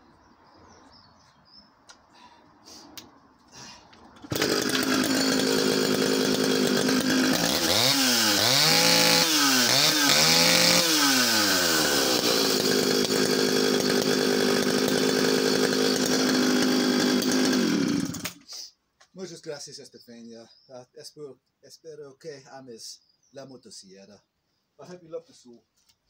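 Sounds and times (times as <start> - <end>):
chainsaw engine idling and revving: 4.2 - 18.4.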